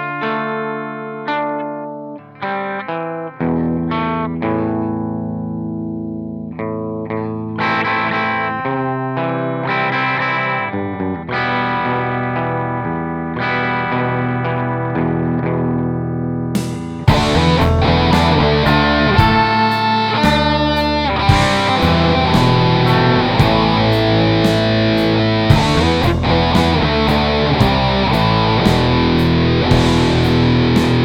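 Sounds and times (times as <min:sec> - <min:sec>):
guitar music with effects: 0:00.0 - 0:31.0
sustained low note: 0:20.2 - 0:31.0.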